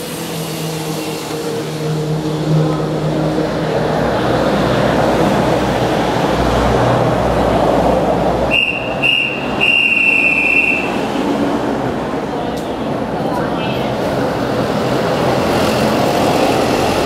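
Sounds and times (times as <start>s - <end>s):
high steady tone: 8.5s - 11.2s.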